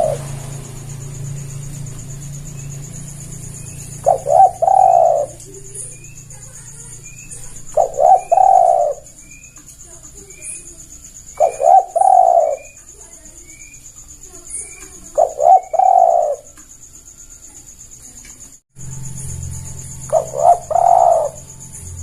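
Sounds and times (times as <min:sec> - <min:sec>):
steady high trill: 0:00.0 - 0:09.5
dove cooing: 0:00.0 - 0:16.6, 0:20.0 - 0:22.0.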